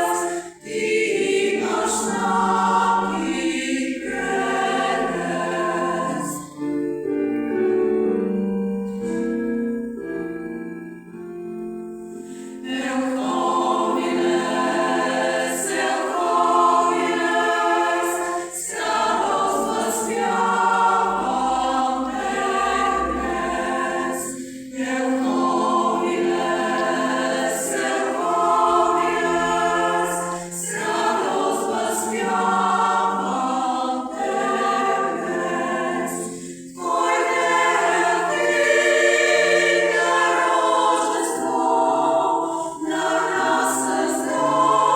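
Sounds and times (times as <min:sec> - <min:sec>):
choir singing sustained chords: 0:00.0 - 0:44.9.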